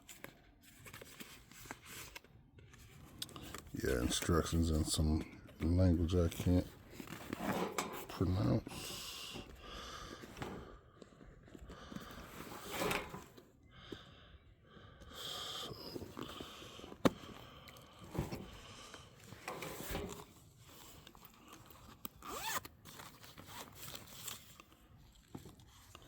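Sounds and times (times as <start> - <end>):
scraping and rustling: 6.2 - 8.4, 12.1 - 13.4, 19.2 - 21.3.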